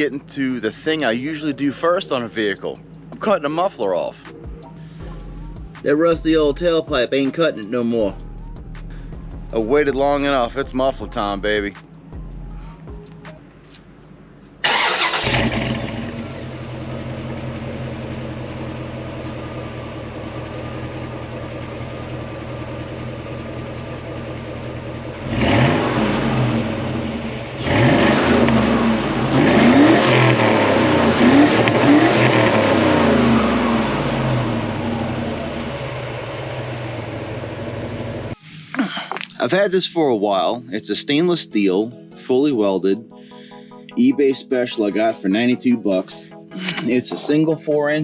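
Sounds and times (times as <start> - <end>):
engine idling and revving: 4.2 - 7.0, 14.6 - 38.4.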